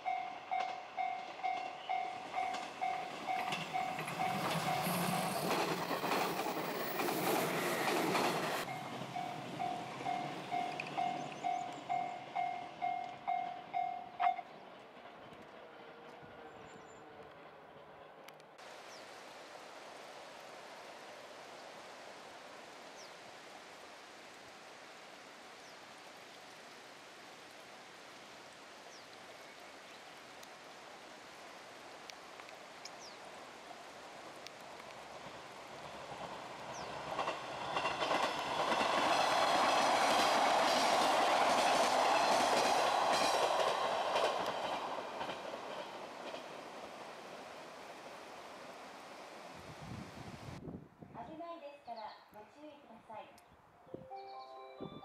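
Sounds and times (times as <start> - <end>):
electric train running noise: 0.0 - 14.2, 34.2 - 49.4
wheels clattering over rail joints: 0.5 - 11.6.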